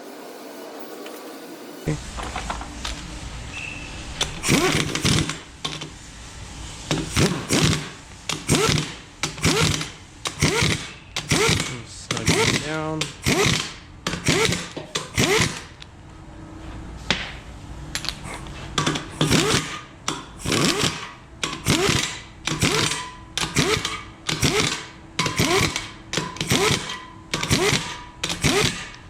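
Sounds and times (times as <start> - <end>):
ratchet wrench clicking: 7.1 - 15.8, 19.0 - 29.0.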